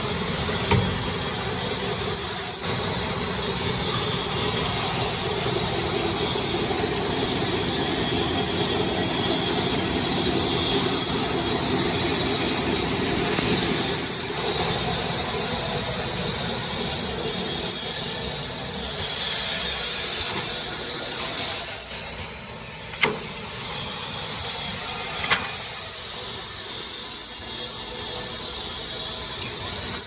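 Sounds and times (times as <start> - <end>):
paper roll rewinding machine running: 1.2 - 18.8.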